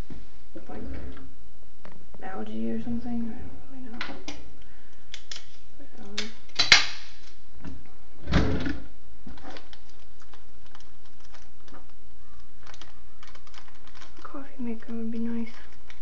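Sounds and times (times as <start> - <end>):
handling crackle: 9.2 - 16.0.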